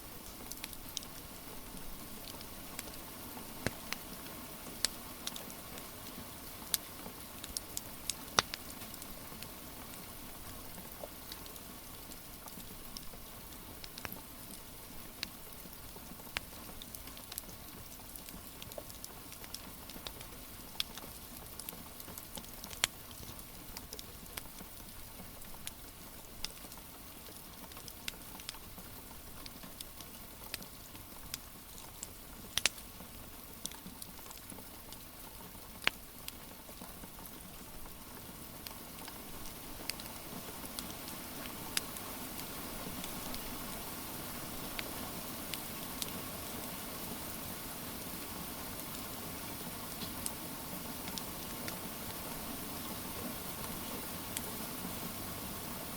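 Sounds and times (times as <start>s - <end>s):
wood fire crackling and popping: 0.2s - 3.0s, 3.6s - 5.8s, 6.6s - 25.8s, 26.4s - 32.8s, 37.3s - 43.8s, 44.6s - 46.2s, 49.9s - 50.4s
rain hissing: 36.1s - 55.9s.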